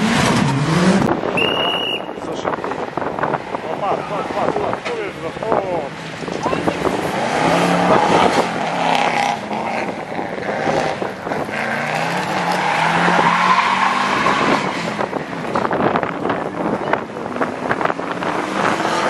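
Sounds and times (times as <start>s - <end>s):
rally car engine revving hard: 0.0s - 1.4s, 5.5s - 19.0s.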